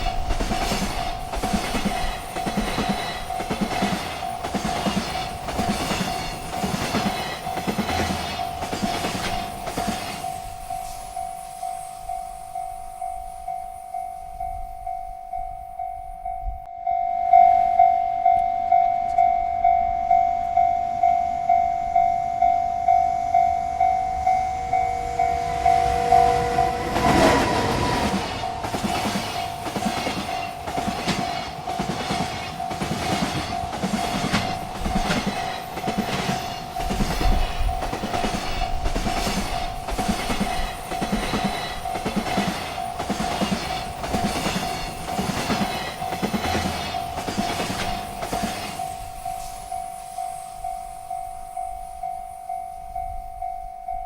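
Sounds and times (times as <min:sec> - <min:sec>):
train wheels clacking over rails: 0:00.0 - 0:13.7, 0:24.0 - 0:51.5
railroad crossing bell ringing: 0:00.0 - 0:54.0.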